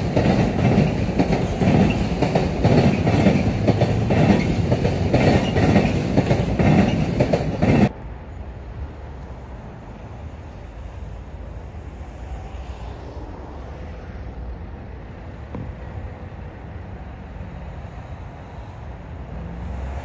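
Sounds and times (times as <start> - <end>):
distant train rumbling: 0.0 - 20.0
low outdoor background noise: 7.8 - 20.0.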